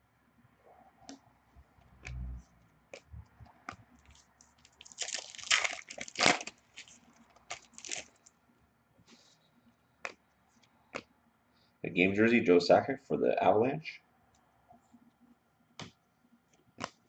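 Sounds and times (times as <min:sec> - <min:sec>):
foil wrapper crinkling and tearing: 0:04.0 - 0:08.3.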